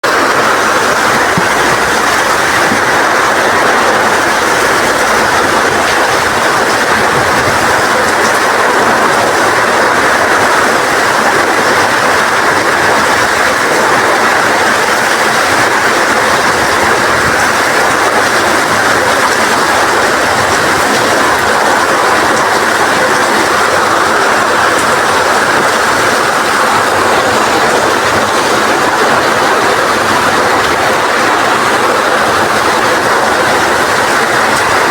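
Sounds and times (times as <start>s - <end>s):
rain in strong wind: 0.0s - 34.9s.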